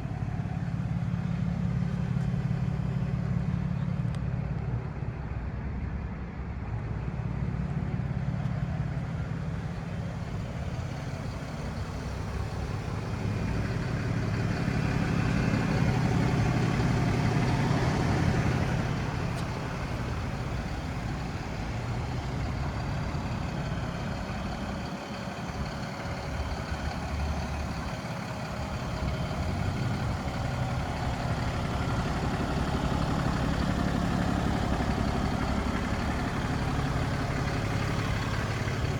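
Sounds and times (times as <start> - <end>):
truck engine running: 0.0 - 5.4, 6.9 - 38.9.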